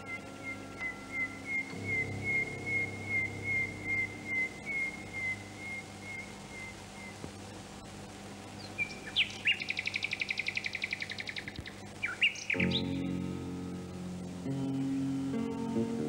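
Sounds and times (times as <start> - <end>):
thin whistled tone: 0.0 - 7.2
songbird calling and trilling: 0.0 - 13.2.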